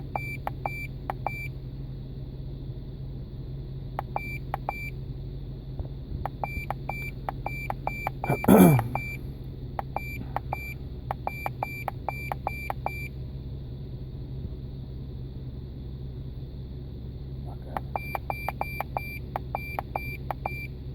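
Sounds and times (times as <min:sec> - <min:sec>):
steady low hum: 0:00.0 - 0:20.9
electronic warning chime beeping: 0:06.3 - 0:09.2.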